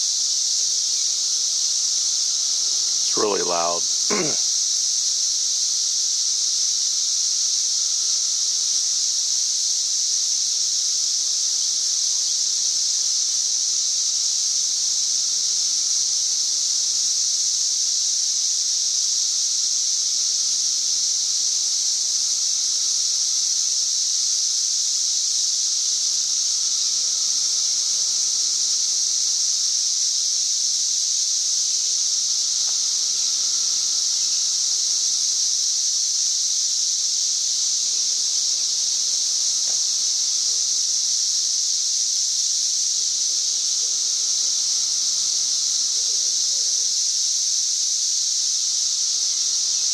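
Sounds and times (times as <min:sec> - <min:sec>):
cicadas singing: 0:00.0 - 0:49.9.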